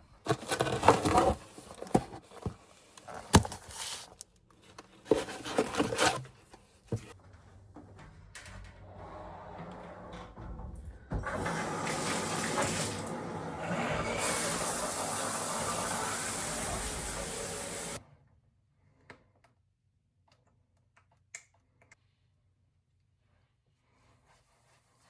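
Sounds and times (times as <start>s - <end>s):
water running: 10.8s - 18.0s.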